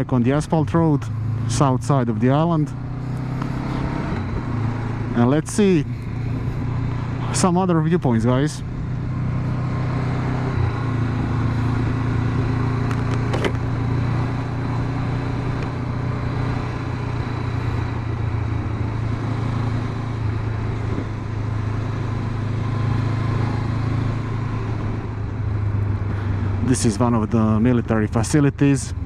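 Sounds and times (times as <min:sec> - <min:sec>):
motorcycle engine running: 0:00.0 - 0:29.0
road and wind noise: 0:00.0 - 0:29.0.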